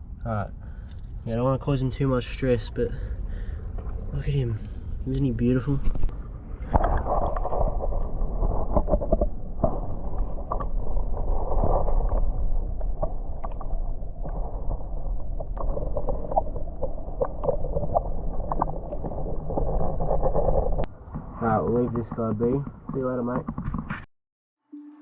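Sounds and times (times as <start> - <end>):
seawater sloshing and gurgling: 3.1 - 20.9.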